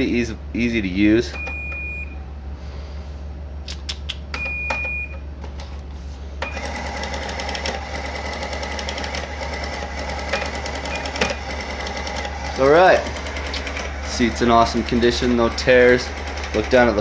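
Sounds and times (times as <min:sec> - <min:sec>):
steady low hum: 0:00.0 - 0:17.0
short beep: 0:04.4 - 0:05.2
receipt printer chattering: 0:06.4 - 0:17.0
cash register key clicks: 0:10.2 - 0:11.5.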